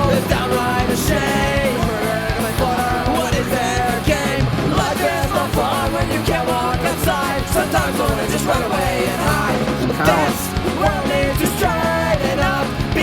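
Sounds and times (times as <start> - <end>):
distorted guitars: 0.0 - 13.0
drums: 0.0 - 13.0
person singing: 0.0 - 13.0
punk rock song: 0.0 - 13.0.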